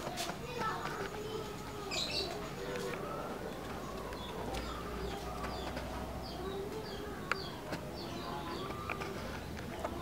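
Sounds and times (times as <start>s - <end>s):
outdoor noise: 0.0s - 10.0s
small birds chirping: 0.0s - 10.0s.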